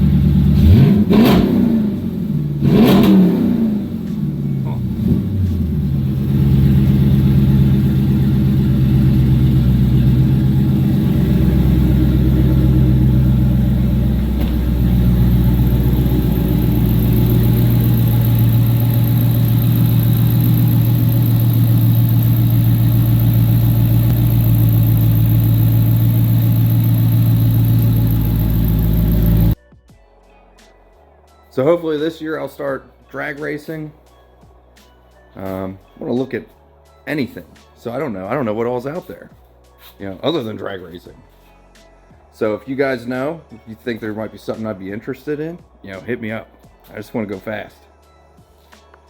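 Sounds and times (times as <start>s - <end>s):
car engine idling: 0.0s - 29.6s.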